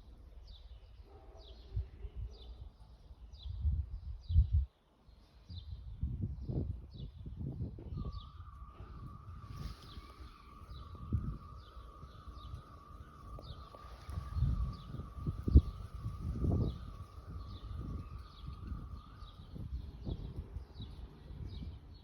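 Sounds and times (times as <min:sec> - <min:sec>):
birds chirping: 0:00.0 - 0:22.0
low rumble gusts: 0:01.7 - 0:22.0
warbling whistle: 0:07.9 - 0:20.4.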